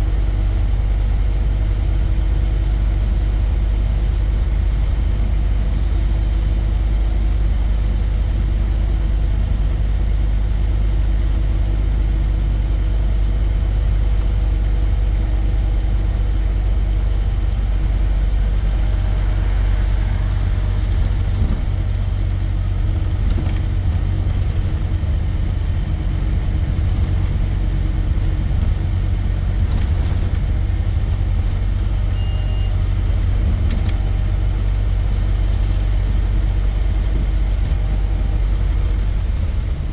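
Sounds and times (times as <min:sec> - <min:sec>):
bus engine rumbling: 0:00.0 - 0:39.9
short high beep: 0:32.1 - 0:32.8.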